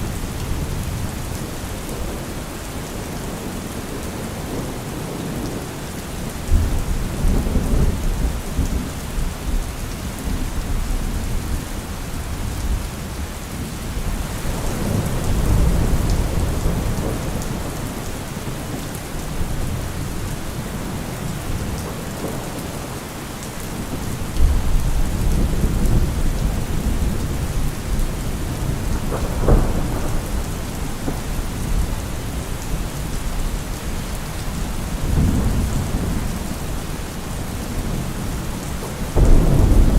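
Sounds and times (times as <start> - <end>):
heavy rain: 0.0 - 39.9
rolling thunder: 13.9 - 22.9, 23.7 - 39.9
thunder crack: 28.6 - 31.8, 39.1 - 39.9.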